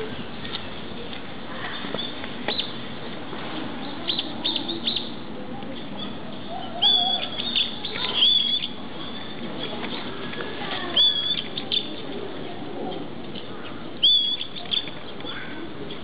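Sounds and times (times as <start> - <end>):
low background murmur: 0.0 - 16.0
whistled bird calls: 4.1 - 5.2, 6.0 - 9.4, 10.9 - 12.0, 14.0 - 15.4.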